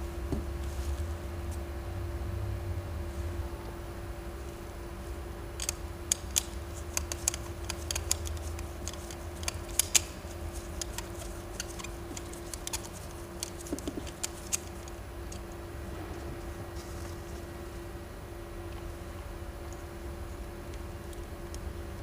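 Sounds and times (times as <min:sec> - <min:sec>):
steady hum: 0:00.0 - 0:22.0
small metal parts clicking: 0:05.6 - 0:15.4.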